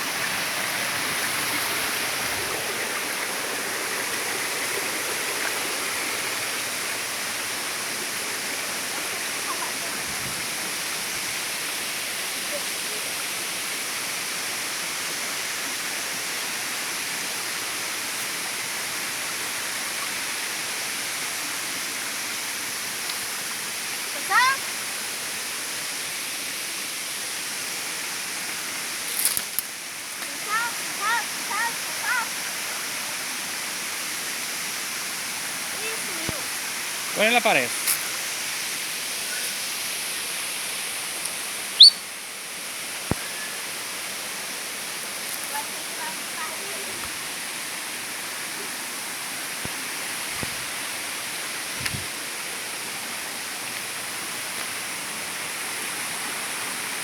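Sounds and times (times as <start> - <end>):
waterfall rushing: 0.0 - 29.1, 29.7 - 57.0
short high chirp: 41.8 - 42.1.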